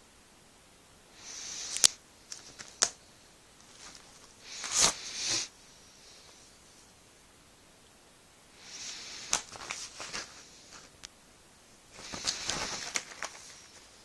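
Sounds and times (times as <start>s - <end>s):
handling rustles: 3.6s - 5.5s, 8.9s - 11.1s, 11.9s - 14.0s.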